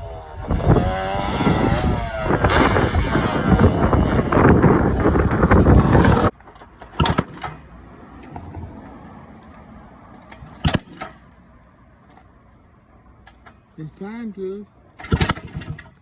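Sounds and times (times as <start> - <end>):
wind noise on microphone: 0.0 - 6.3.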